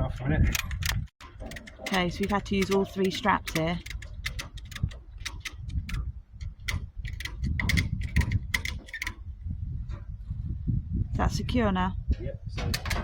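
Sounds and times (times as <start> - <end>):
ratchet strap clicking: 0.5 - 9.2.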